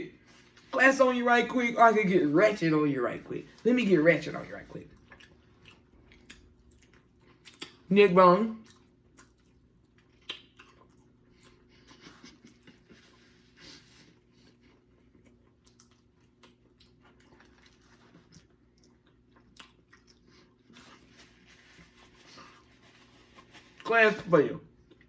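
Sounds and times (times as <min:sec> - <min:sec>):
person chewing and biting: 0:05.0 - 0:07.9, 0:08.6 - 0:13.0, 0:14.5 - 0:23.8.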